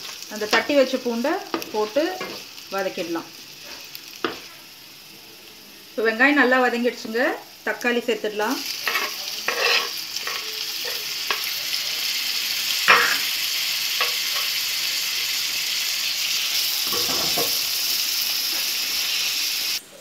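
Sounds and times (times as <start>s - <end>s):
tomatoes sizzling in hot oil: 0.0s - 20.0s
spatula scraping a pan: 1.5s - 2.5s, 8.8s - 11.5s.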